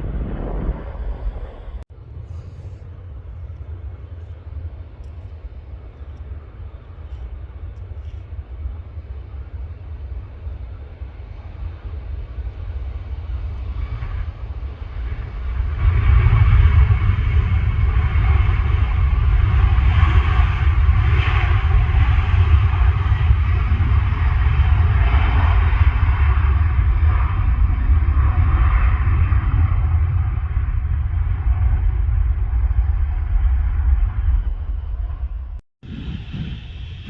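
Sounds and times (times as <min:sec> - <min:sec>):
jet engines low rumble: 0:00.0 - 0:37.0
rushing jet noise: 0:35.8 - 0:37.0.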